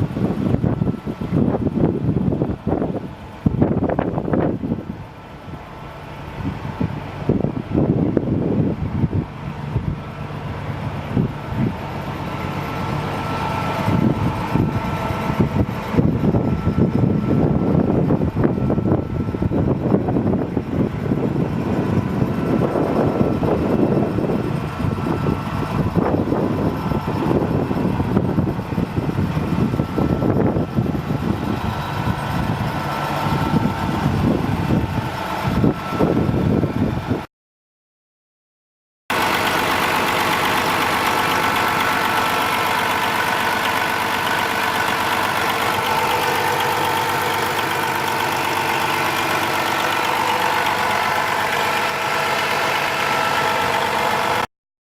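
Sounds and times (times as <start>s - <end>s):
diesel truck engine running: 0.0s - 37.3s, 39.1s - 54.5s
wind buffeting microphone: 0.0s - 37.3s.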